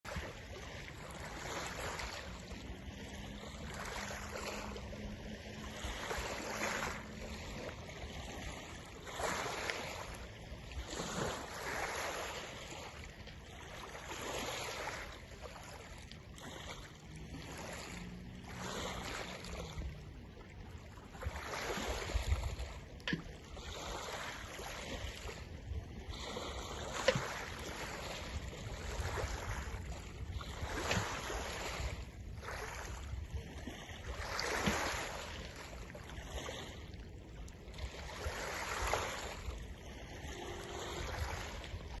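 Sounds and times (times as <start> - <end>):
small waves washing: 0.0 - 42.0
wind buffeting microphone: 25.2 - 35.1, 38.1 - 42.0.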